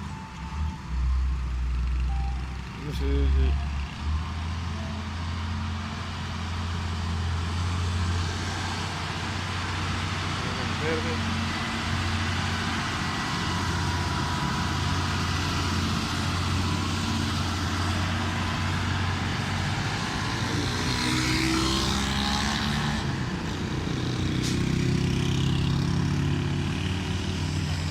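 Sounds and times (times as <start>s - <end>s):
truck diesel engine running: 0.0s - 21.1s
road noise: 0.0s - 27.9s.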